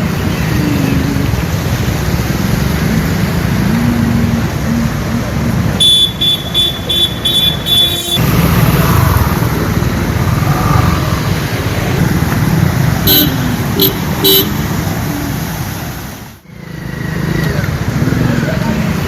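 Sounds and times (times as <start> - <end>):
street traffic: 0.0 - 19.0
short vehicle horn toots: 5.8 - 8.2.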